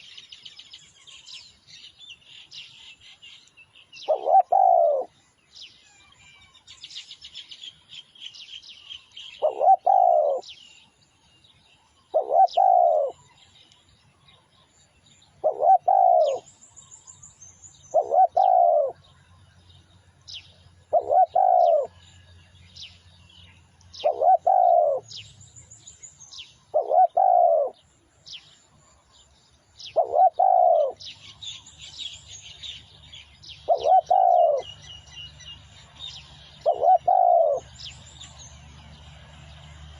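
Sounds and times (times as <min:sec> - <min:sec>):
small birds chirping: 0:00.0 - 0:39.9
dove cooing: 0:04.0 - 0:05.1, 0:09.4 - 0:10.6, 0:12.1 - 0:13.2, 0:15.4 - 0:16.5, 0:17.9 - 0:19.0, 0:20.9 - 0:22.1, 0:24.0 - 0:25.2, 0:26.7 - 0:27.8, 0:29.8 - 0:31.6, 0:33.5 - 0:34.8, 0:36.6 - 0:37.8.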